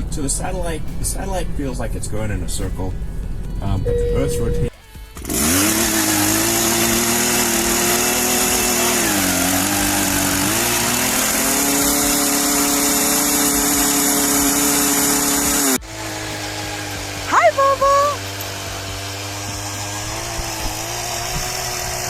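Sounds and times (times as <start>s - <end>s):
small engine running: 4.8s - 22.0s.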